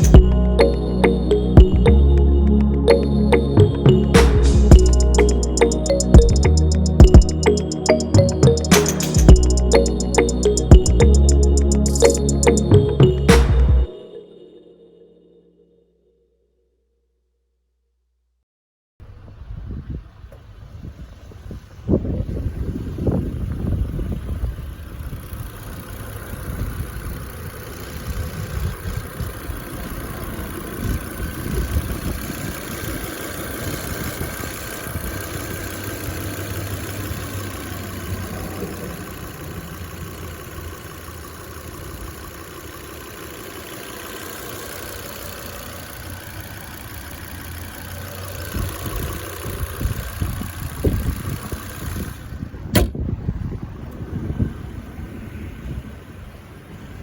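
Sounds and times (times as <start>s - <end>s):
car engine idling: 22.6s - 52.9s.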